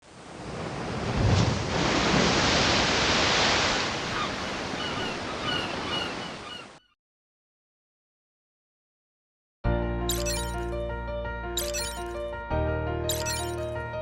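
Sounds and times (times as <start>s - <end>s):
ocean waves: 0.1s - 6.6s
short high chirps: 10.1s - 10.8s, 11.6s - 12.2s, 13.1s - 13.7s.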